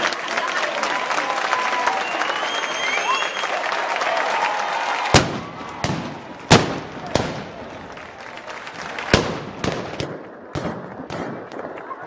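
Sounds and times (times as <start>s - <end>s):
crowd noise: 0.0s - 12.0s
gunpowder bangs: 5.2s - 11.8s.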